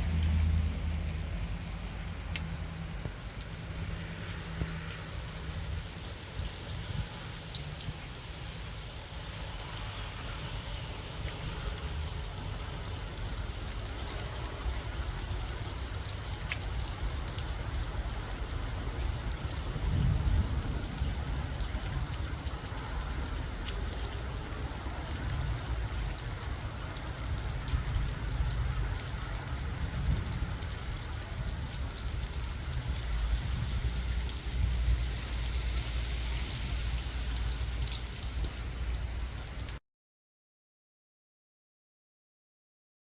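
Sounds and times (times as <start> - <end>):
low rumble: 0.0 - 7.6
light ticks: 1.4 - 4.8, 34.3 - 39.0.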